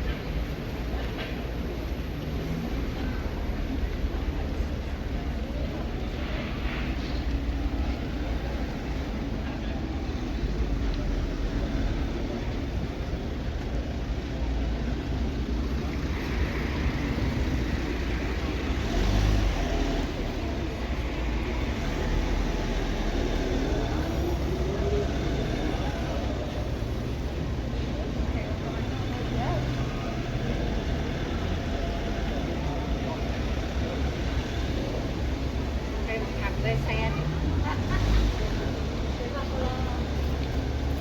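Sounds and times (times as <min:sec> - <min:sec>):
cars driving past: 0:00.0 - 0:41.0
car accelerating: 0:14.8 - 0:41.0.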